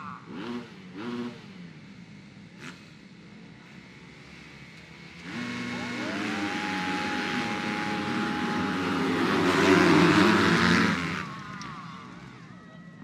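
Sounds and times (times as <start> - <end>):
motorcycles racing past: 0.0 - 1.9, 3.7 - 12.6.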